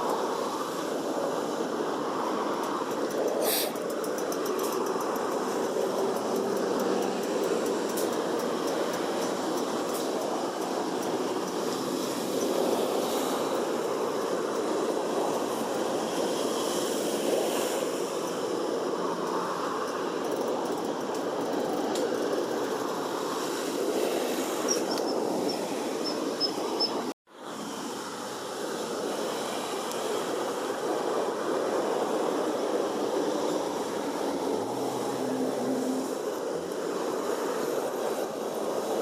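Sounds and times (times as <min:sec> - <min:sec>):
steady rushing background noise: 0:00.0 - 0:39.0.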